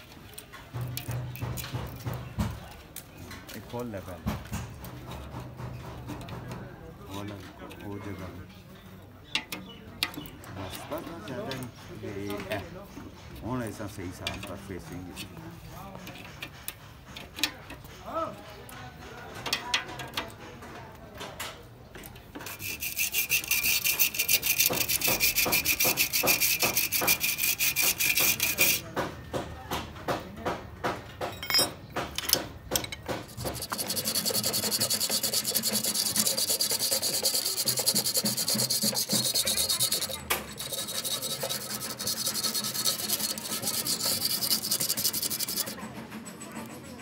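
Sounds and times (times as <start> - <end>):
hand scraping on car radiator: 22.4 - 28.9, 33.2 - 45.8.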